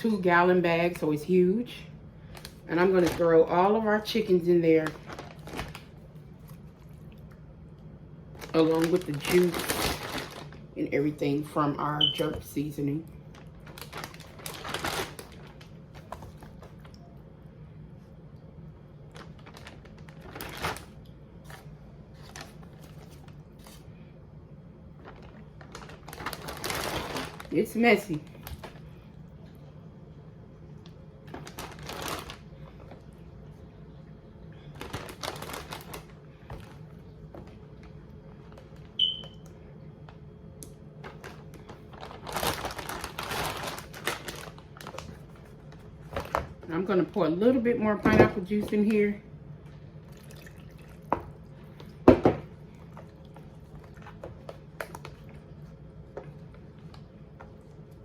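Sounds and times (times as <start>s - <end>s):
low steady hum: 0.0s - 58.0s
plastic bag crinkling: 2.2s - 6.8s, 8.3s - 16.9s, 19.0s - 23.9s, 24.9s - 29.0s, 31.2s - 33.3s, 34.6s - 39.4s, 41.0s - 49.2s
faint liquid sounds: 48.7s - 58.0s.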